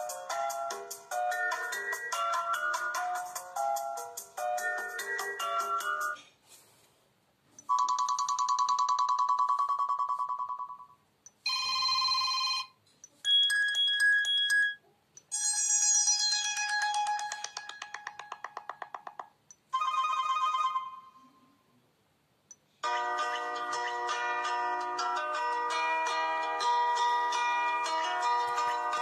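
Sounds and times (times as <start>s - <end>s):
phone ringtone previews: 7.7s - 10.9s.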